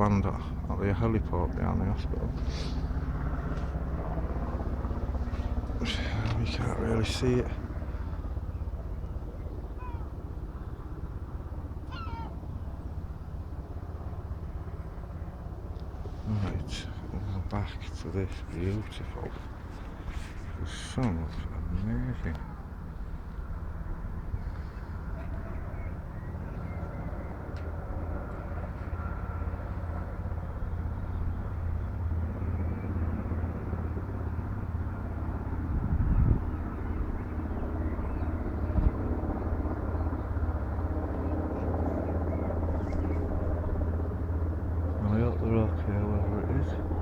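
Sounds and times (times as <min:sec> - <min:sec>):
low rumble with rapid flutter: 0:00.0 - 0:47.0
bird call: 0:11.9 - 0:12.4.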